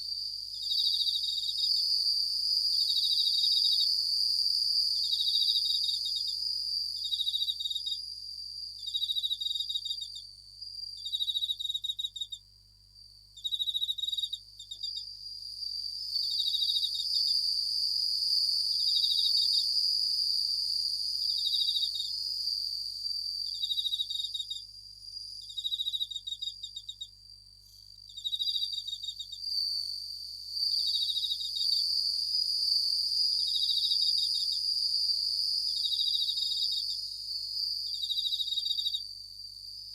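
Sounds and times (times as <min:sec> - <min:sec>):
crickets ringing trill: 0:00.0 - 0:08.0, 0:13.4 - 0:39.9
pulsed cricket chirps: 0:00.0 - 0:39.9.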